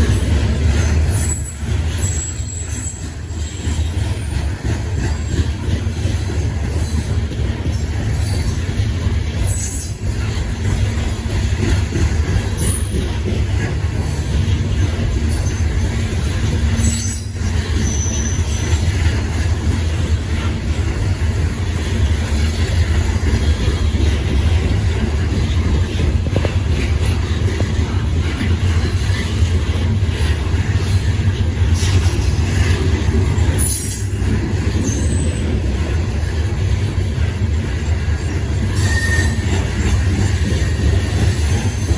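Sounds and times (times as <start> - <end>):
freight train cars rumbling: 0.0 - 41.9
train wheel clicks: 0.0 - 41.9
high-pitched wheel squeals: 0.9 - 3.8, 16.8 - 18.8, 38.7 - 40.1.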